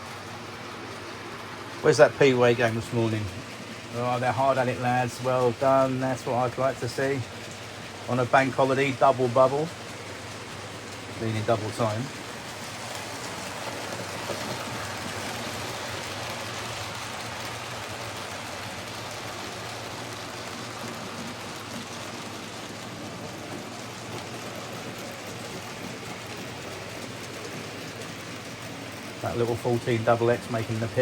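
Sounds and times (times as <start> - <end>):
model trains whirring on track: 0.0 - 31.0.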